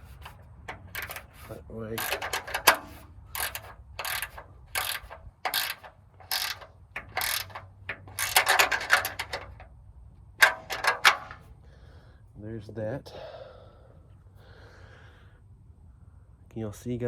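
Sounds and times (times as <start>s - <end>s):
ratchet wrench strokes: 0.0s - 9.6s, 10.4s - 11.4s.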